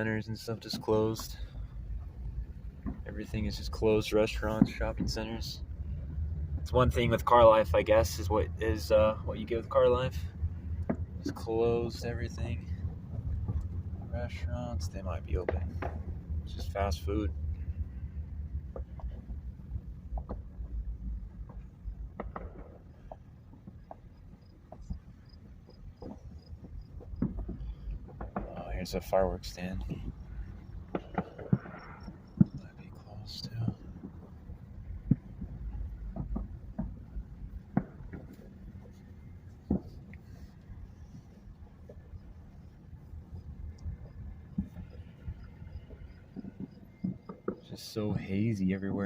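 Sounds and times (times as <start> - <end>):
car driving rumble: 0.0 - 49.0.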